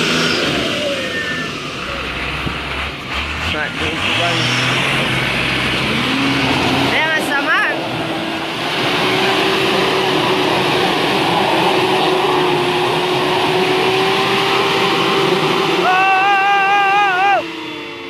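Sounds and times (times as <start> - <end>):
vehicle engines running hard: 0.0 - 18.0
person shouting: 15.7 - 17.5.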